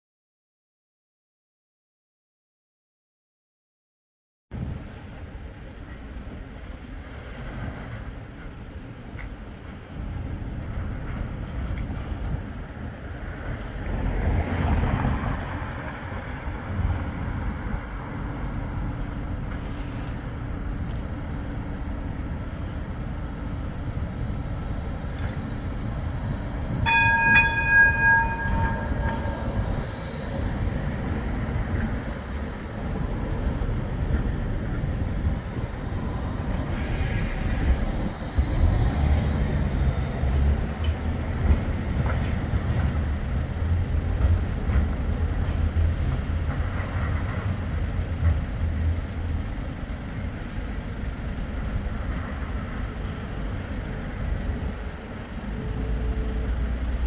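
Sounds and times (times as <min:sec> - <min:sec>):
tram low rumble: 0:04.5 - 0:57.0
tram horn note: 0:26.8 - 0:30.2.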